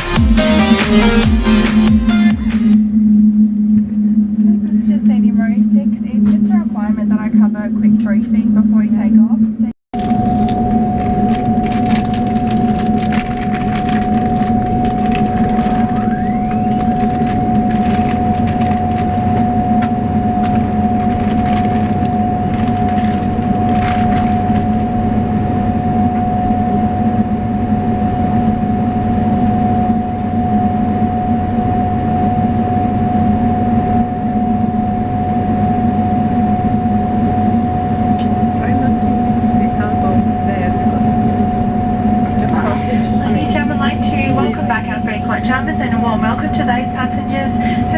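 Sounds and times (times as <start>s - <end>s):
turboprop cabin drone: 0.0s - 47.9s.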